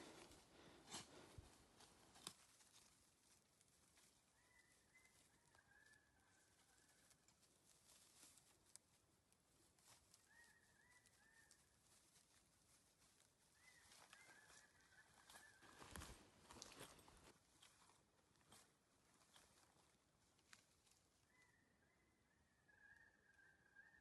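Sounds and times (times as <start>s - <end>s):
faint bird calls: 4.0s - 7.3s, 9.8s - 12.2s, 13.0s - 17.3s, 21.0s - 24.0s.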